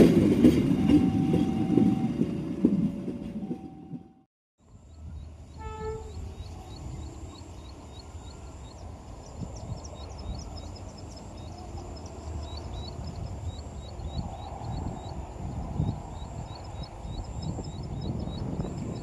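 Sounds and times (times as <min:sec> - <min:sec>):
small birds chirping: 0:04.7 - 0:19.0.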